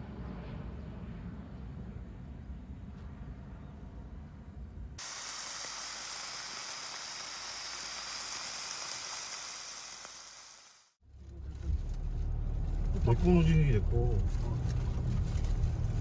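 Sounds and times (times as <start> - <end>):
steady hiss: 5.0 - 11.0
low rumble: 11.0 - 16.0.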